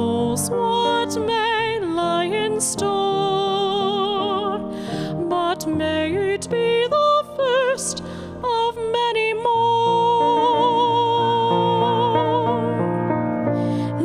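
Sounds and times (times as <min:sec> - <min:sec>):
singer with wide vibrato: 0:00.0 - 0:13.0.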